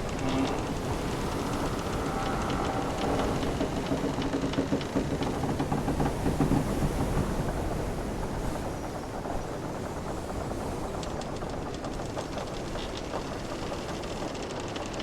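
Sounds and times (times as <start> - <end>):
wooden timbers creaking: 0.0 - 7.8, 9.2 - 15.0
light ticks: 0.2 - 5.7.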